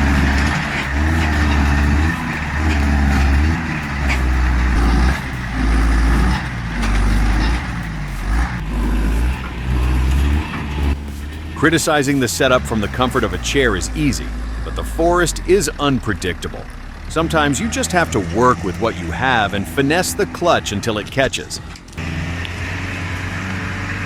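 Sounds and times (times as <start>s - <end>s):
heavy truck engine revving: 0.0s - 24.0s.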